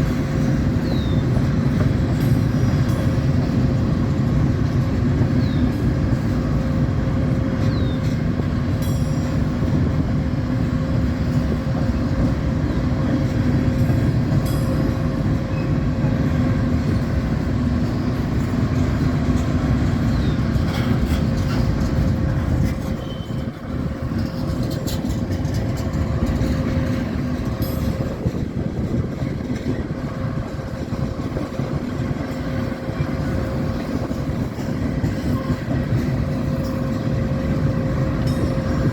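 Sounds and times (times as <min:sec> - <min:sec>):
train rumbling past: 0:00.0 - 0:38.9
wheel clicks and squeaks: 0:18.1 - 0:30.1.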